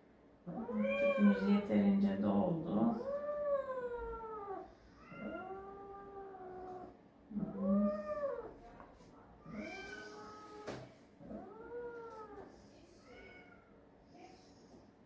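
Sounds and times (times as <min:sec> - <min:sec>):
cat yowling: 0:00.5 - 0:01.6, 0:02.9 - 0:08.6, 0:09.4 - 0:12.5.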